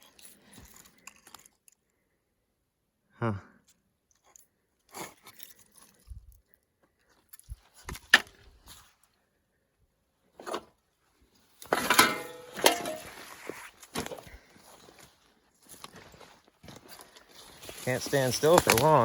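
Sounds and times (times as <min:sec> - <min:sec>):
metal pieces knocking: 0:11.7 - 0:13.2
metal clattering and scraping: 0:11.7 - 0:13.5
metallic ringing tone: 0:11.9 - 0:13.2.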